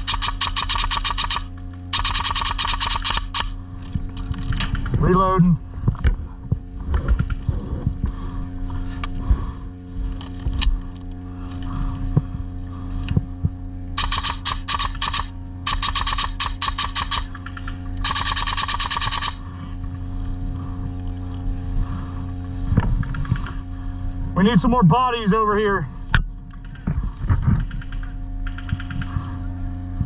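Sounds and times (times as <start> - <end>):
airsoft gun full-auto bursts: 0.0 - 3.6, 14.0 - 19.4
steady low drone: 0.0 - 30.0.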